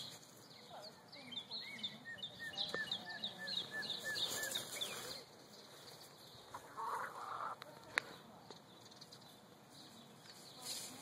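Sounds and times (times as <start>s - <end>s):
birds chirping: 0.0s - 11.0s
chicken clucking: 6.5s - 8.2s
brief rustle: 10.2s - 11.0s.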